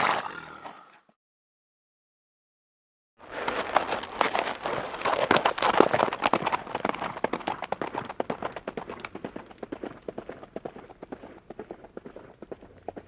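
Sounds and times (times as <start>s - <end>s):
horse hooves clattering: 3.2s - 13.0s.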